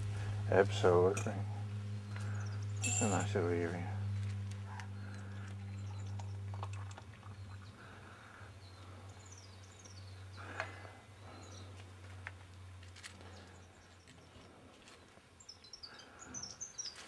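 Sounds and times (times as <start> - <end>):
steady low hum: 0.0 - 16.8
faint birdsong: 0.0 - 17.0.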